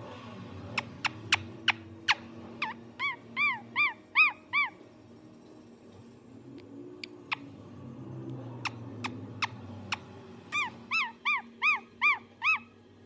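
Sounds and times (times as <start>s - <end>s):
parrot squeaky calls: 0.8s - 4.8s, 8.6s - 12.8s.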